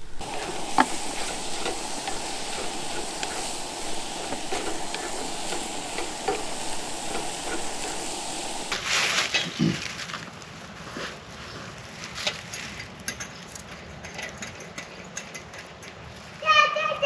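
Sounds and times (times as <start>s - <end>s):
food sizzling in a frying pan: 0.0s - 9.0s.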